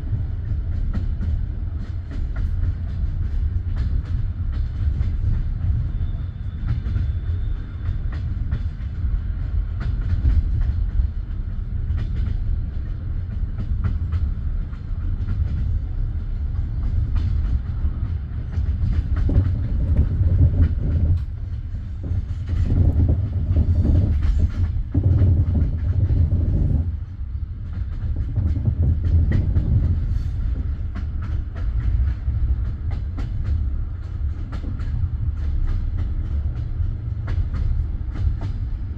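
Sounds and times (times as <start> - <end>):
rail joint clicks and knocks: 0.0 - 38.9
train wheels rumbling on track: 0.0 - 38.9.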